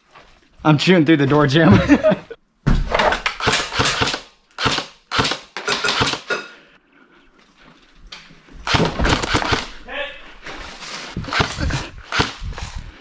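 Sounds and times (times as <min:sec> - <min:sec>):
airsoft gun firing bursts: 0:03.4 - 0:06.3, 0:08.7 - 0:09.7, 0:11.2 - 0:12.4.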